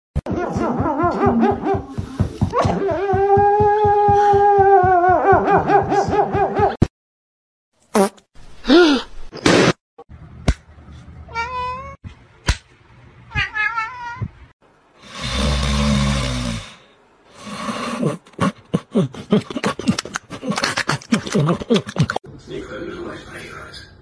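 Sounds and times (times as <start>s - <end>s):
cat meowing: 13.3s - 14.3s
loud breathy noise with hum: 15.0s - 18.3s.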